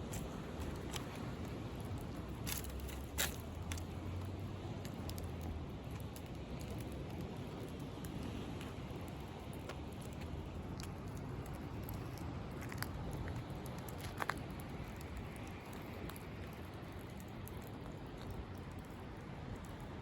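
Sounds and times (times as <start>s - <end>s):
bonfire crackling and popping: 0.0s - 20.0s.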